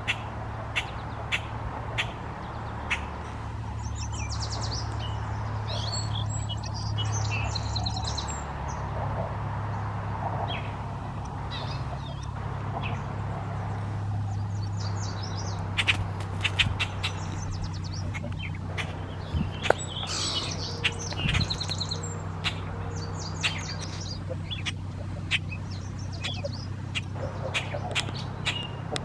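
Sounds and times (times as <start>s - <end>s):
songbirds chirping: 0.0s - 29.0s
steady low rumble: 0.0s - 29.0s
sharp clicky bird notes: 14.2s - 29.0s.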